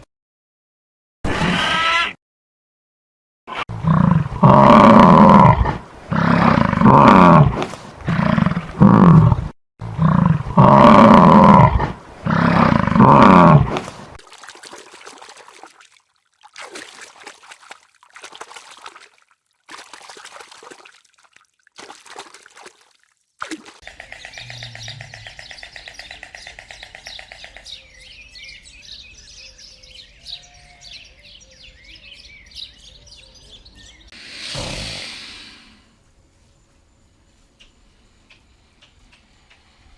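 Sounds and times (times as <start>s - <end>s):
large animal roaring: 3.8s - 9.4s, 10.0s - 13.8s.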